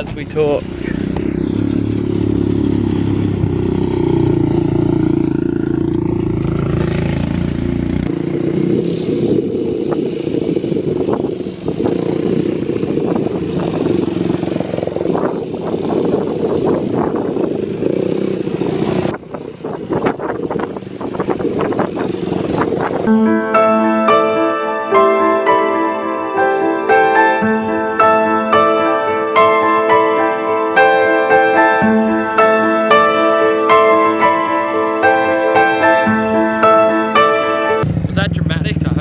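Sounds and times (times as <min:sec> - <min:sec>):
motorcycle engine running: 0:00.1 - 0:23.0, 0:37.8 - 0:39.0.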